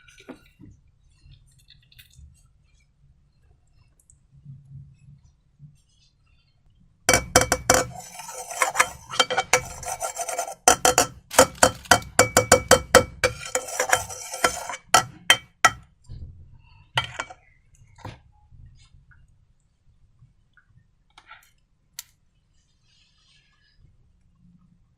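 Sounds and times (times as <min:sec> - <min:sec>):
utensil clinking against a bowl: 0:07.1 - 0:15.8, 0:17.0 - 0:17.4.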